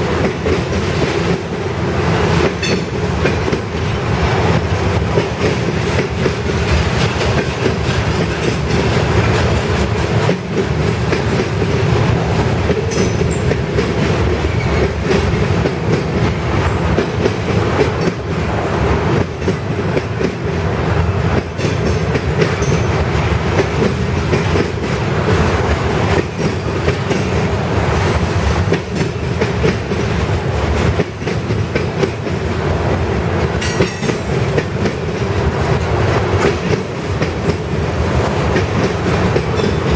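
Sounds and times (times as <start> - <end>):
freight train wheels rumbling: 0.0 - 39.9
wheels clacking over rail joints: 21.3 - 27.6, 33.3 - 39.9.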